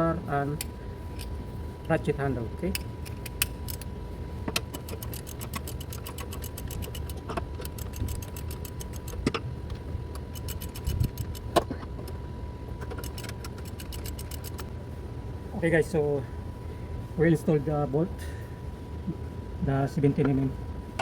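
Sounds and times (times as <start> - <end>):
steady low hum: 0.0 - 21.0
ratchet handle clicking: 4.5 - 9.4, 10.1 - 11.6, 12.8 - 14.7.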